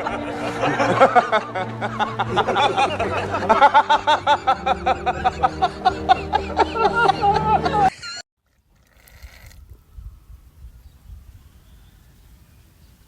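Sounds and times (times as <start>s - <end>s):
background music with low notes: 0.0s - 7.9s
person laughing: 0.0s - 8.2s.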